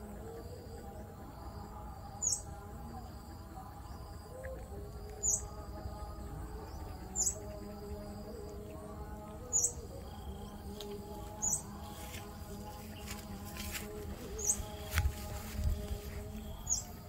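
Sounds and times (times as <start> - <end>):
faint low background tones: 0.0 - 17.0
bird chirping: 0.1 - 17.0.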